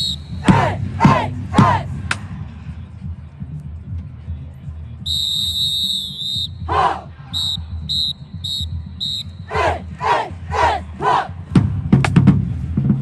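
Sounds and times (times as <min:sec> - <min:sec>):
whistle short blasts: 0:00.0 - 0:00.6, 0:05.0 - 0:06.7, 0:07.3 - 0:09.5
people shouting call-outs: 0:00.0 - 0:01.9, 0:06.6 - 0:07.7, 0:09.4 - 0:11.3.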